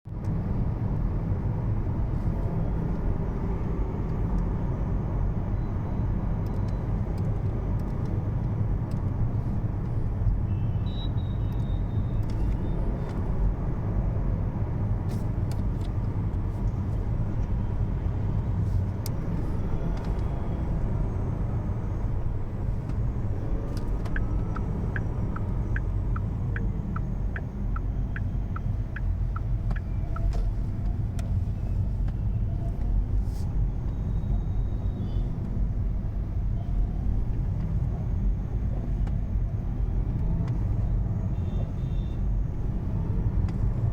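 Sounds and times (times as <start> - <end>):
road and tyre rumble: 0.0 - 43.9
regular high ticking: 23.8 - 30.3.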